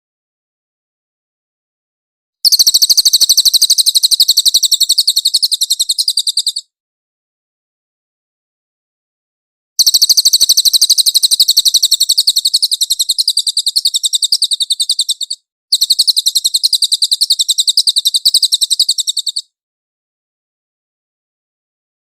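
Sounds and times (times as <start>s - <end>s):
songbird rapid high trill: 2.4s - 6.7s, 9.8s - 19.5s.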